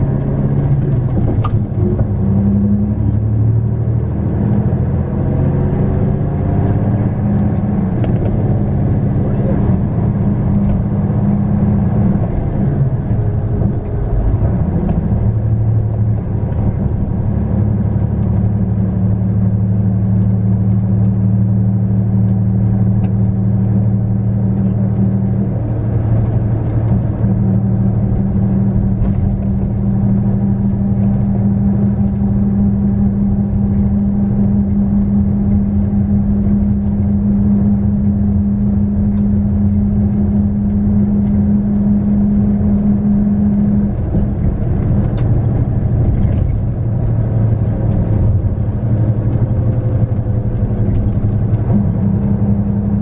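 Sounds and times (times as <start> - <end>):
bus diesel engine droning: 0.0 - 53.0
road noise: 0.0 - 53.0.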